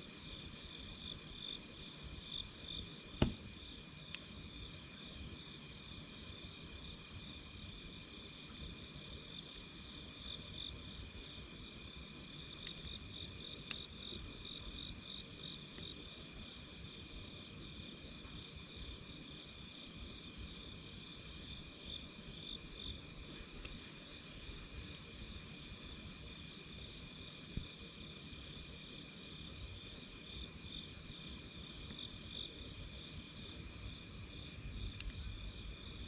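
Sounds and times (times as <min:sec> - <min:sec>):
night insects trilling: 0:00.0 - 0:36.0
wood fire crackling: 0:03.0 - 0:04.4, 0:10.0 - 0:14.3, 0:22.6 - 0:27.0, 0:29.5 - 0:36.0
sharp fire pops: 0:03.2 - 0:03.8.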